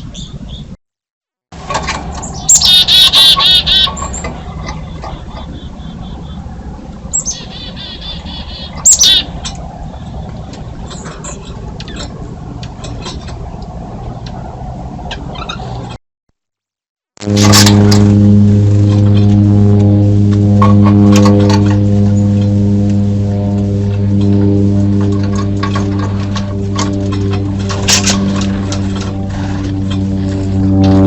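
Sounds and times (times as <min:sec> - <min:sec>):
steady low hum: 0:01.6 - 0:14.6, 0:17.2 - 0:31.0
small birds chattering: 0:02.2 - 0:11.1.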